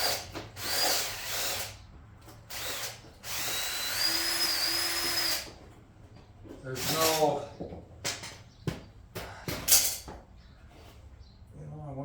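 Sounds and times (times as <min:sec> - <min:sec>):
power drill whining: 0:00.0 - 0:01.8, 0:02.5 - 0:05.6.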